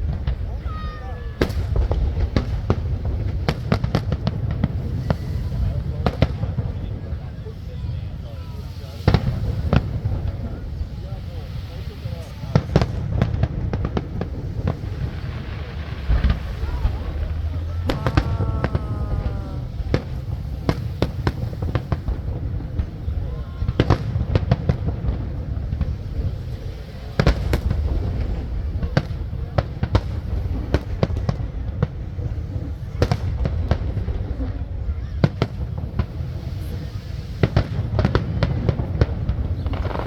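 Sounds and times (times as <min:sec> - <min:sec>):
fireworks bangs: 0:00.0 - 0:07.2, 0:08.8 - 0:32.0, 0:35.2 - 0:40.0
continuous low rumble: 0:12.9 - 0:23.8, 0:38.6 - 0:40.0.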